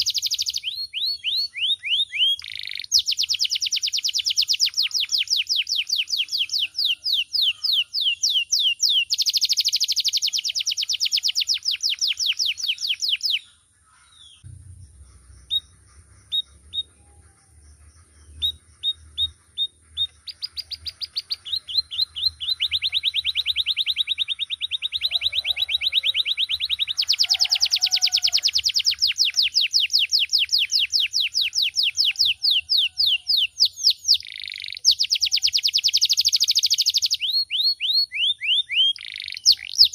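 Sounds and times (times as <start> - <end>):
canary chirps: 0.0 - 39.9
canary singing trills: 0.0 - 39.9.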